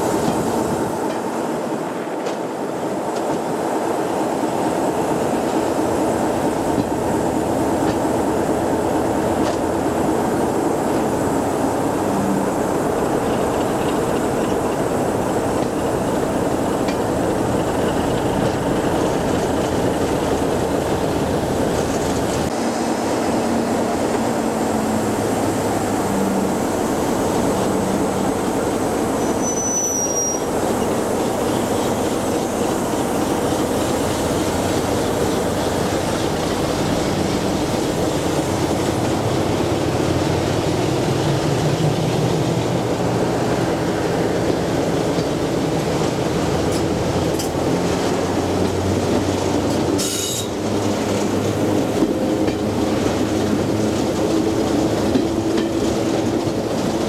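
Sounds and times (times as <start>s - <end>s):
diesel locomotive engine: 0.0s - 57.0s
wheels rumbling on rails: 0.0s - 57.0s
brief high squeal: 29.2s - 30.5s, 50.0s - 50.5s.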